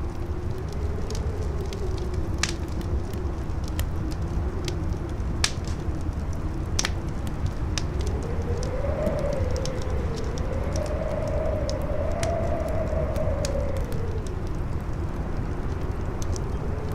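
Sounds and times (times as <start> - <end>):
campfire crackling and popping: 0.0 - 16.9
howling wind: 0.0 - 16.9
low wind rumble: 0.0 - 16.9.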